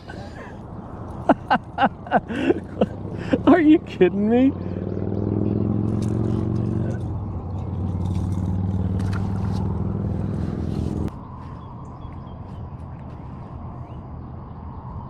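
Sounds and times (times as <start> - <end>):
light clicks and scrapes: 7.9 - 11.1.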